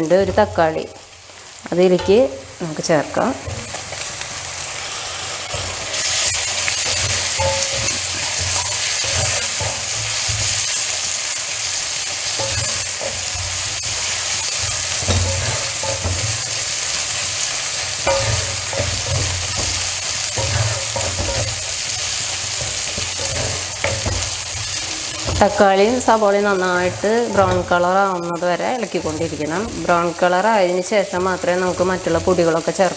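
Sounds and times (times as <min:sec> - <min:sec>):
food sizzling in a wok: 0:00.0 - 0:32.9
spoon stirring and scraping: 0:05.5 - 0:32.4.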